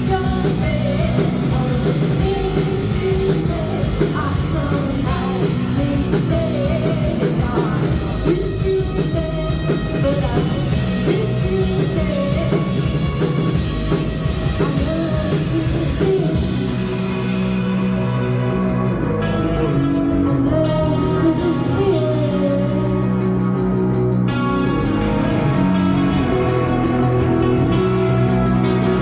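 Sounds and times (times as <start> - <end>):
person singing: 0.0 - 17.0, 19.2 - 24.4
drum kit: 0.0 - 29.0
live rock band playing: 0.0 - 29.0.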